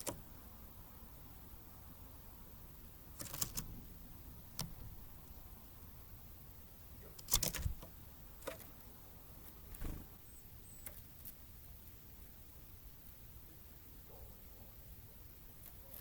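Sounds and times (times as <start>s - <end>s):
birds tapping and pecking: 3.1s - 3.8s, 7.0s - 10.2s
faint high bird chirps: 9.7s - 12.4s.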